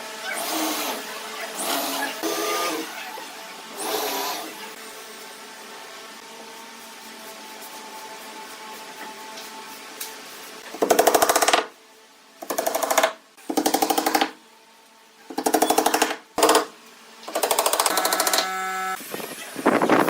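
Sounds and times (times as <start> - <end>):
power tool rapid hammering: 10.8 - 11.7, 12.4 - 14.4, 15.3 - 16.7, 17.3 - 18.5.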